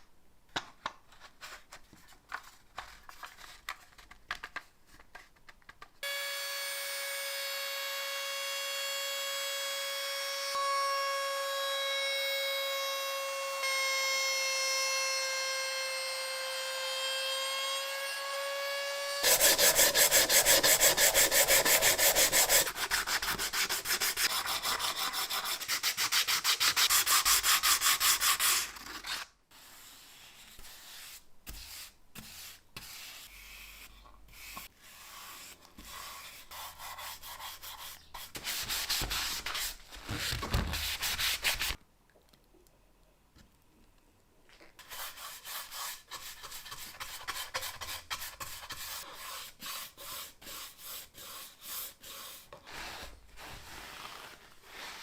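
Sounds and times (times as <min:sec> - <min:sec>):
scraping and handling sounds: 0:00.5 - 0:06.0, 0:38.1 - 0:42.4, 0:52.0 - 0:55.0
sanding strokes: 0:19.2 - 0:28.7, 0:29.6 - 0:39.8, 0:44.8 - 0:55.0.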